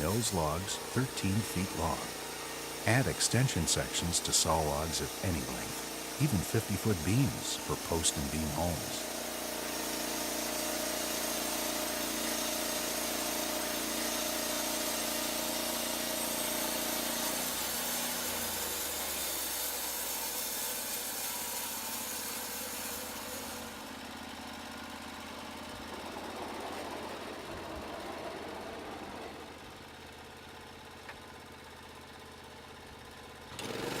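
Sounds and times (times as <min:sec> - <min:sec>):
saw blade hissing through wood: 0:00.0 - 0:23.9
sawmill engine running: 0:00.0 - 0:30.7, 0:31.3 - 0:34.0.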